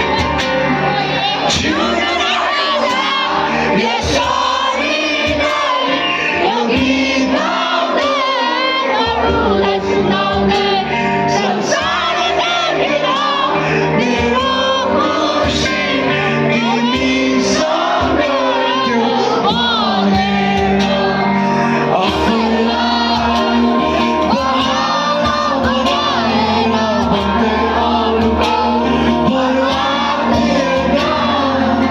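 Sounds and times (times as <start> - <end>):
bass notes: 0.0 - 8.1, 9.0 - 31.9
steady beat: 0.0 - 8.4
people singing: 0.0 - 31.9.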